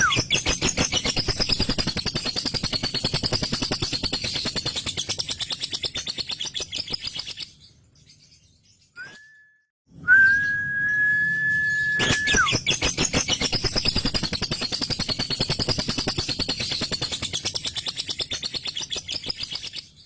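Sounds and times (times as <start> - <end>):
bird high whistle: 9.0 - 14.2.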